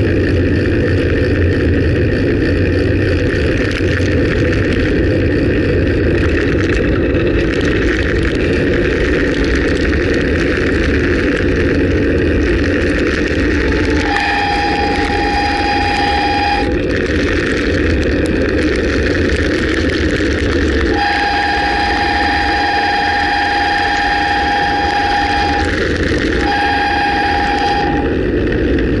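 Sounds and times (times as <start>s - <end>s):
wet road rushing: 0.0s - 29.0s
wind noise: 0.0s - 29.0s
bicycle brakes squealing: 13.6s - 16.7s.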